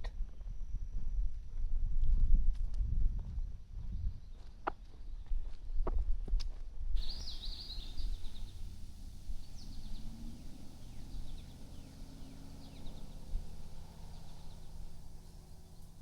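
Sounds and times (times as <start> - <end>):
footsteps on a trail: 1.3 - 10.3
faint down-slurred bird notes: 7.0 - 16.0
songbird warbling: 7.0 - 16.0.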